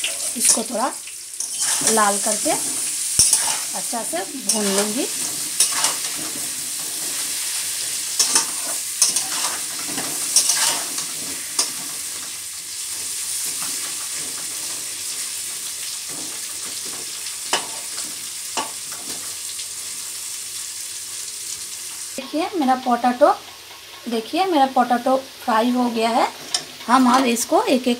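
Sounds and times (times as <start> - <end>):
potatoes sizzling in oil: 0.0 - 27.9
metal skimmer scraping pan: 1.4 - 11.9.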